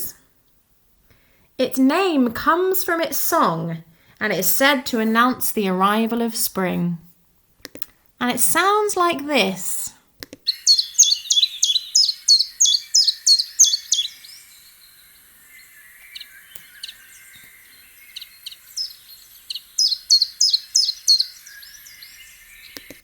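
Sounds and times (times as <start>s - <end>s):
faint birdsong: 8.0s - 23.0s
chiffchaff singing: 8.2s - 23.0s.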